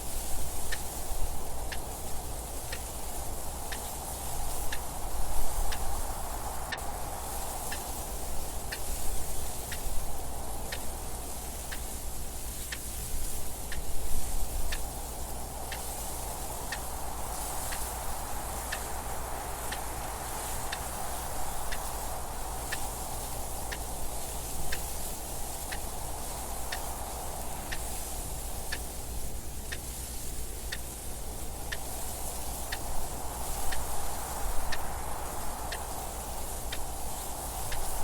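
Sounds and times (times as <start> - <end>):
wind: 0.0 - 38.0
clock ticking: 4.5 - 4.9, 28.6 - 29.0, 31.6 - 34.0, 34.7 - 34.9.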